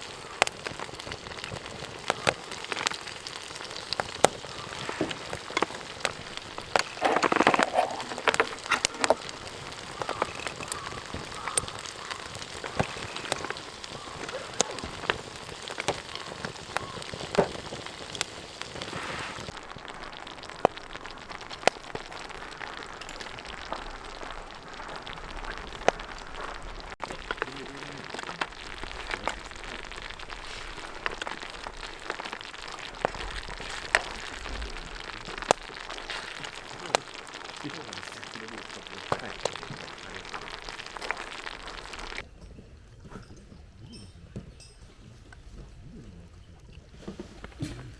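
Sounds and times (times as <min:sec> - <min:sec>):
steady hiss: 0:00.0 - 0:42.2
campfire wood crackling and popping: 0:00.0 - 0:47.9.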